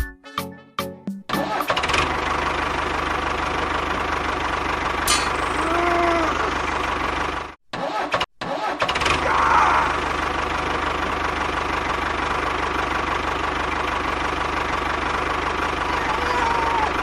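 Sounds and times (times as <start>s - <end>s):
small engine knocking rhythmically: 1.4s - 7.6s, 10.0s - 17.0s.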